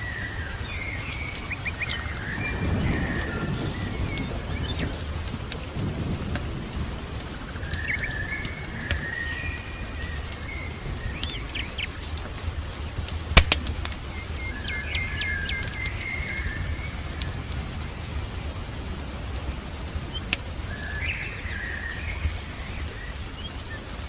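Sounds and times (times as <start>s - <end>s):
birds singing: 0.0s - 24.0s
wood fire crackling and popping: 0.0s - 24.0s.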